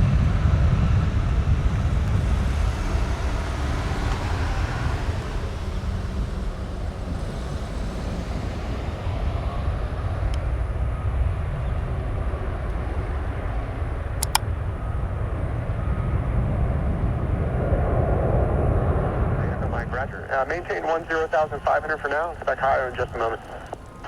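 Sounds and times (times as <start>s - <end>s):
jet engines rumbling: 0.0s - 24.0s
sharp clicks: 14.2s - 14.5s, 22.3s - 24.0s.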